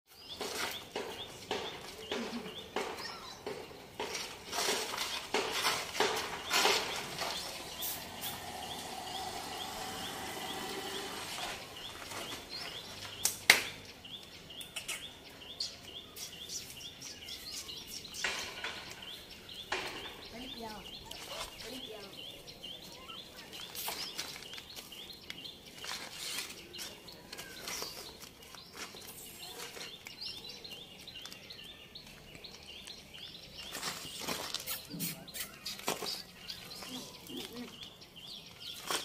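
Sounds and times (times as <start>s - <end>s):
bird chirping: 0.1s - 39.0s.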